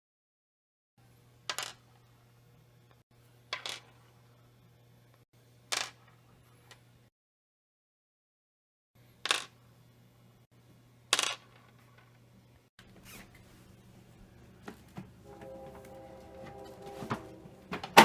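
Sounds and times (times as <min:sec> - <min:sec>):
music: 0:15.2 - 0:18.0.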